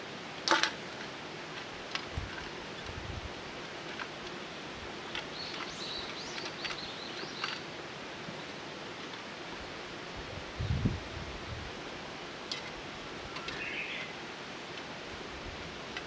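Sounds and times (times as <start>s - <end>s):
steady outdoor hiss: 0.0s - 16.0s
bird chirping: 4.4s - 7.6s, 13.2s - 14.2s.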